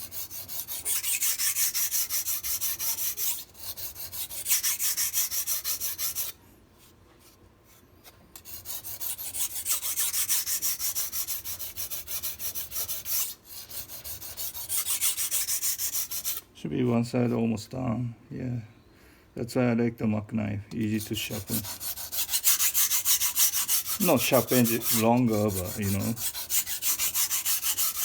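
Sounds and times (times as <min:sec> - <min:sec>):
knife scraping on sharpening stone: 0:00.0 - 0:06.3, 0:20.9 - 0:28.0.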